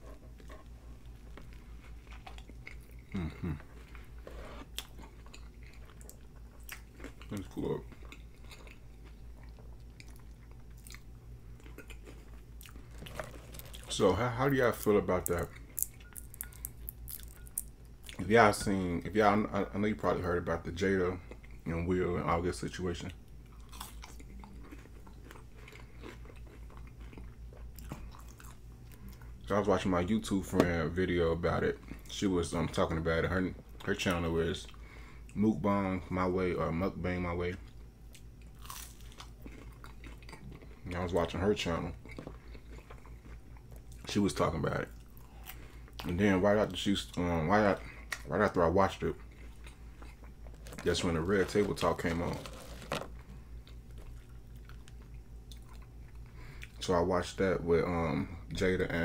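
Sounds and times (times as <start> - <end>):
closed-mouth hums: 0.0 - 5.2
close chewing: 0.0 - 14.0, 23.4 - 29.2, 37.6 - 44.1
mouth chewing crunchy fries: 0.0 - 57.3.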